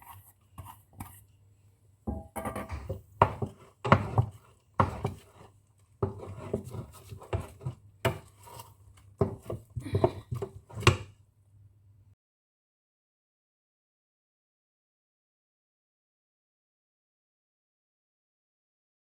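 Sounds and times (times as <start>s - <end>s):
spoon scraping and knocking pot: 0.0s - 1.2s, 2.1s - 11.1s.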